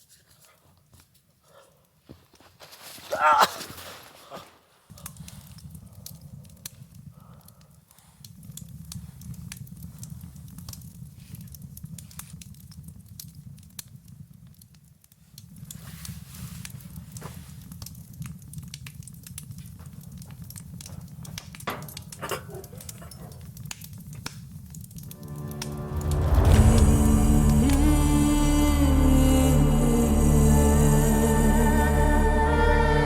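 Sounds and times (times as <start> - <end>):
campfire crackling and popping: 4.9 - 28.0
steady low rumble: 25.1 - 33.0.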